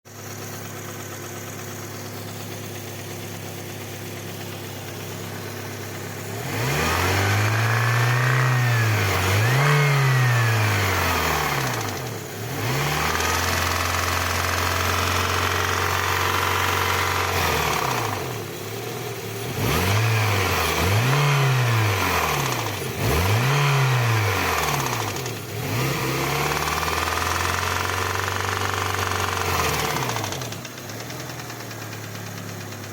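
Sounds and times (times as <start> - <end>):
engine knock: 0.1 - 6.4, 11.2 - 19.3, 26.4 - 32.9
car engine idling and revving: 0.1 - 32.9.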